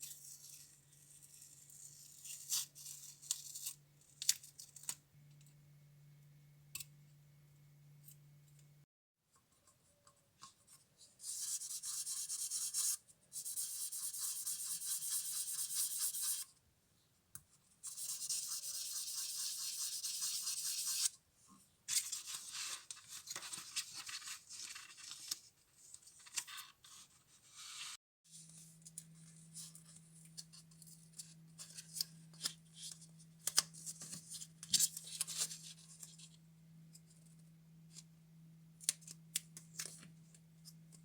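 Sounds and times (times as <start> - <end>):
scratching on a small model: 0.0 - 5.0, 9.5 - 16.6, 17.6 - 21.2, 21.9 - 38.1.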